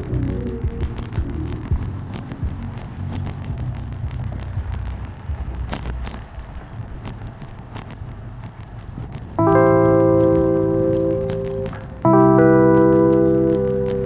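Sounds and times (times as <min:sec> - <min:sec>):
bicycle riding rumble: 0:00.0 - 0:10.5
music with held notes: 0:09.4 - 0:14.0.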